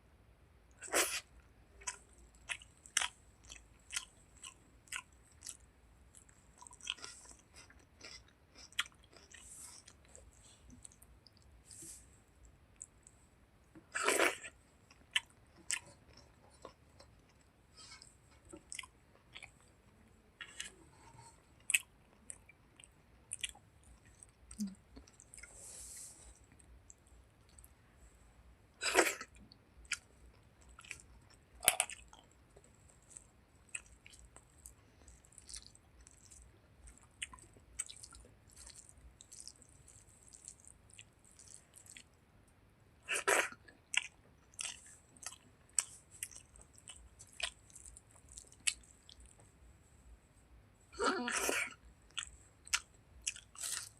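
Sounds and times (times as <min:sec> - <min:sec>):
wet chewing: 0:32.9 - 0:42.2.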